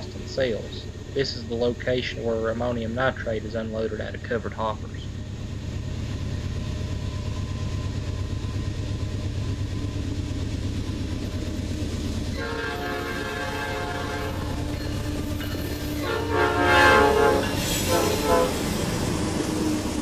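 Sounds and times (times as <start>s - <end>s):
diesel locomotives rumbling: 0.0s - 20.0s
train air horn chord: 12.4s - 14.6s, 16.0s - 18.7s.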